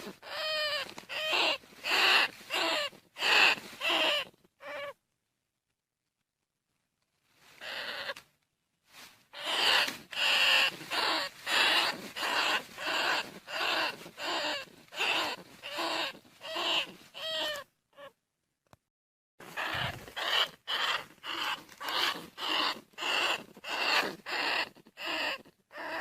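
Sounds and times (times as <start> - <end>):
rat squeaking: 0.1 - 5.0, 7.6 - 8.2, 9.4 - 18.2, 19.4 - 26.0.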